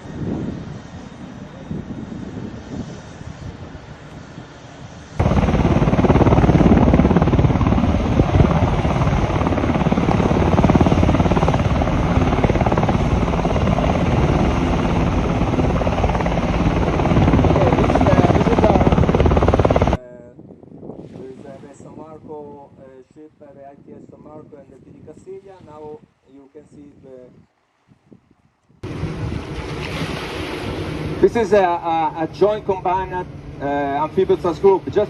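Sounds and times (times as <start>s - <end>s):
helicopter rotor and engine: 0.0s - 20.0s, 28.8s - 35.0s
wind noise: 0.0s - 35.0s.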